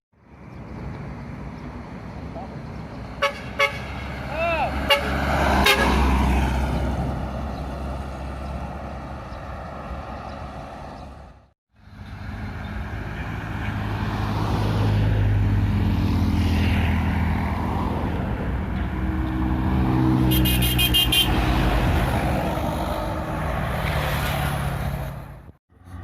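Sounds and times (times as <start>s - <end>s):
heavy vehicle engine passing: 0.3s - 26.0s
short high horn blast: 20.3s - 21.4s.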